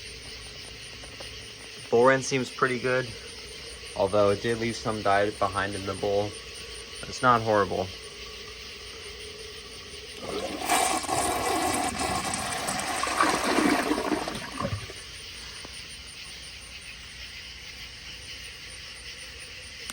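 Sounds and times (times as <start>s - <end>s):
toilet flushing: 2.2s - 15.0s
water gurgling in drain: 2.3s - 15.2s.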